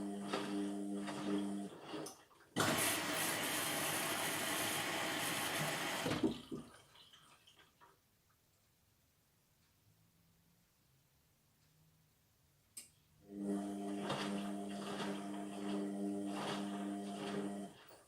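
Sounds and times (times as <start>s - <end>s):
water rushing into machine: 0.0s - 6.7s, 13.3s - 17.9s
washing machine hum: 0.0s - 7.7s, 13.2s - 18.0s.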